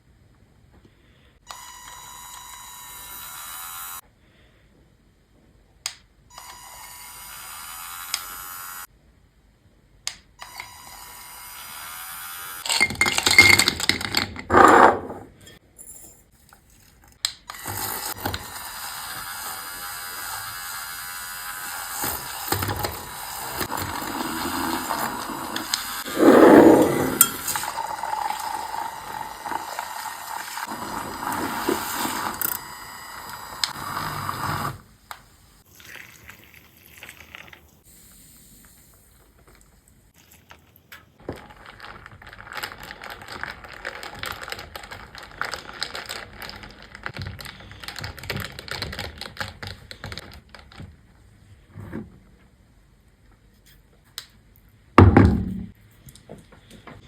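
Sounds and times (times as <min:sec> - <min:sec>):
liquid pouring hiss: 0:35.6 - 0:39.6.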